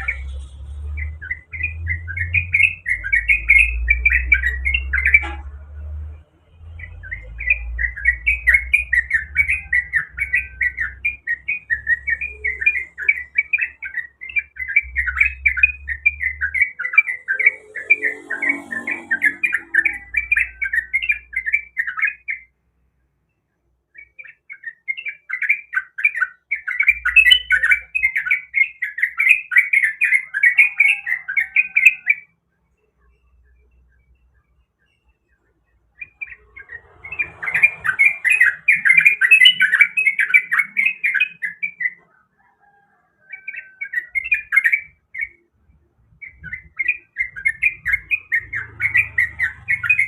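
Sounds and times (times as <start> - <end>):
bird chattering song: 0.0 - 22.6, 23.3 - 42.2, 43.3 - 50.0.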